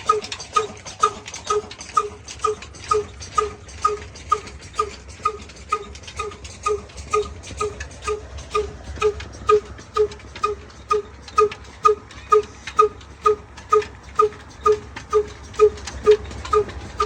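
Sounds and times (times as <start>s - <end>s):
diesel engine running slowly: 0.0s - 17.0s.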